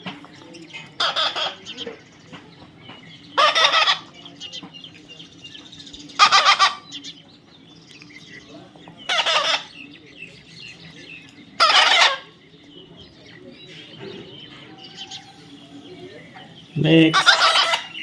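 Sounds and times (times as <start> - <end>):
parrot squawking: 1.0 - 1.8, 3.4 - 4.1, 6.2 - 7.2, 9.1 - 9.8, 11.6 - 12.4, 17.1 - 18.0.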